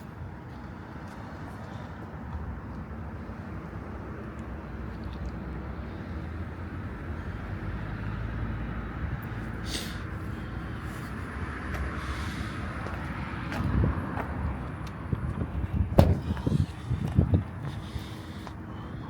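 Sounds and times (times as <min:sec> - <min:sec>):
low traffic rumble: 0:00.0 - 0:19.0
wind on microphone: 0:13.6 - 0:18.1.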